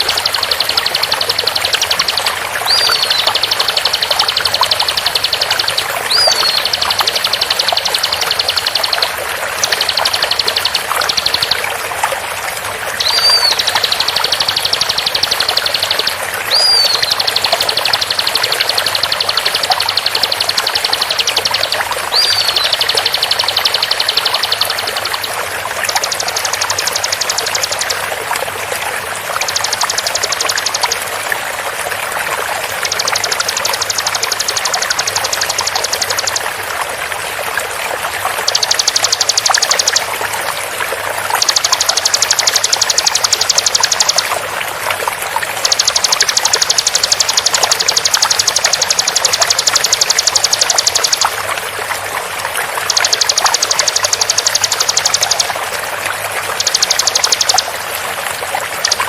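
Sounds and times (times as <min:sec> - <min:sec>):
bird singing fast buzzy trills: 0:00.0 - 0:11.7, 0:13.0 - 0:28.1, 0:29.4 - 0:31.1, 0:32.7 - 0:36.5, 0:38.4 - 0:40.1, 0:41.2 - 0:44.4, 0:45.6 - 0:51.4, 0:52.8 - 0:55.5, 0:56.6 - 0:57.7
whistled bird notes: 0:00.0 - 0:11.7, 0:13.0 - 0:28.0, 0:41.4 - 0:44.4, 0:45.6 - 0:51.4, 0:56.6 - 0:57.7
flowing water: 0:00.0 - 0:59.0.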